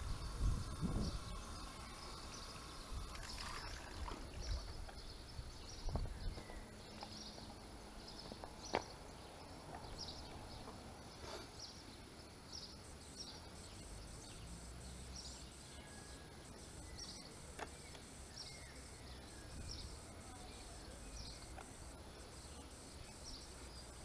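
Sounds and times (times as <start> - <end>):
small birds chirping: 0.0 - 24.0
sharp click: 17.5 - 18.5.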